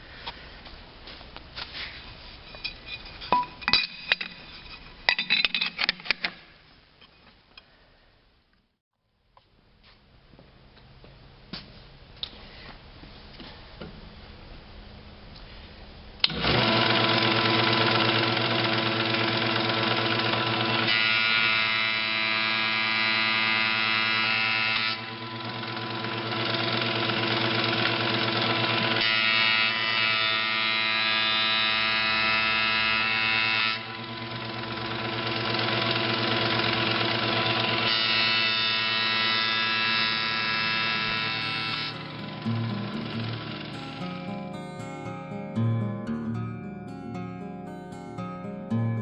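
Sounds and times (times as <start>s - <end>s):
planer motor humming: 16.2s - 29.8s, 33.8s - 44.4s.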